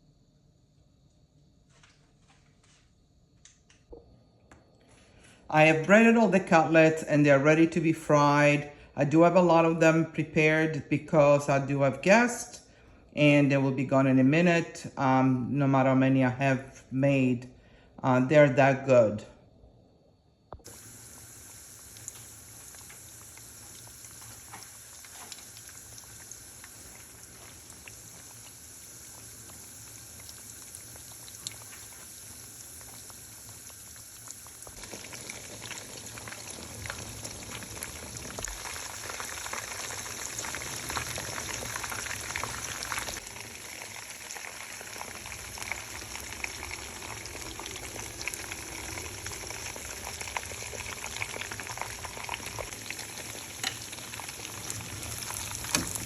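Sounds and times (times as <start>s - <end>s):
chicken frying in oil: 20.6s - 56.0s.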